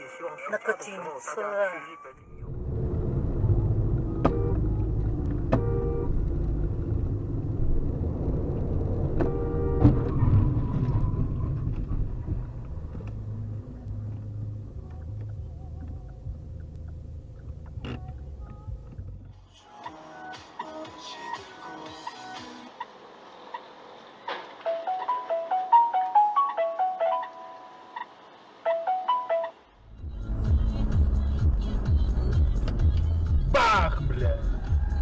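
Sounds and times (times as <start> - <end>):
car driving rumble: 2.2 - 20.8, 29.6 - 35.0.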